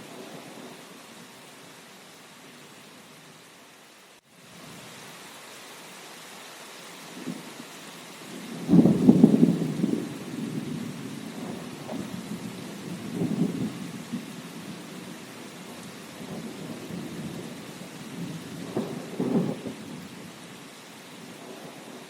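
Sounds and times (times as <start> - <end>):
steady rain: 0.0 - 22.0
thunder rumbling: 8.3 - 15.1, 15.7 - 20.2.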